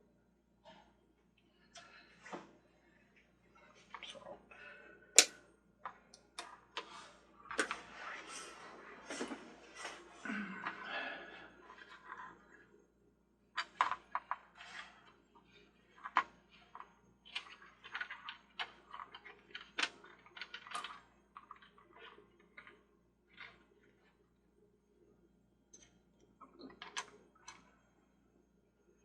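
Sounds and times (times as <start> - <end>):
plastic parts clicking: 5.2 - 5.4.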